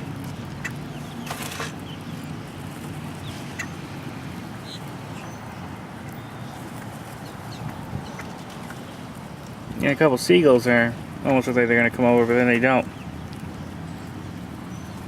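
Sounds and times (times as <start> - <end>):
birds chirping: 0.0 - 15.0
wings flapping: 1.2 - 1.8.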